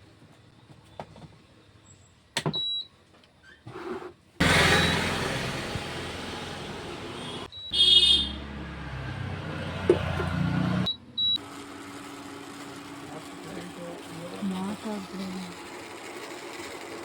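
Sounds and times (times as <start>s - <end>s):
cooktop fan hum: 11.4s - 17.0s.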